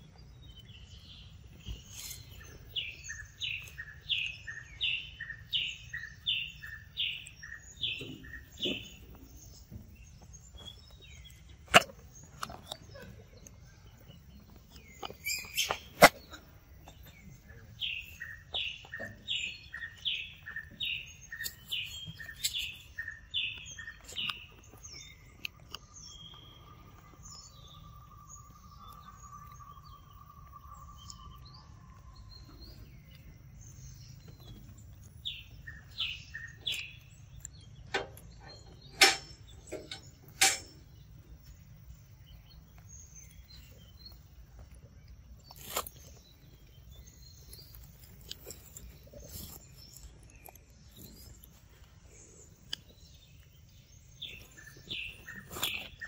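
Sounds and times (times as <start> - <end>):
forest birds chirping: 0.0 - 56.0.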